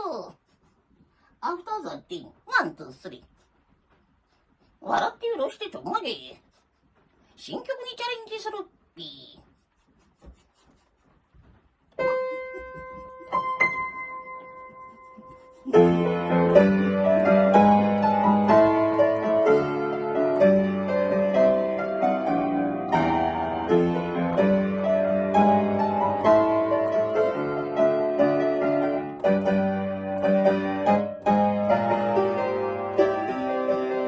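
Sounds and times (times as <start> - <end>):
piano melody over chords: 15.7 - 34.0.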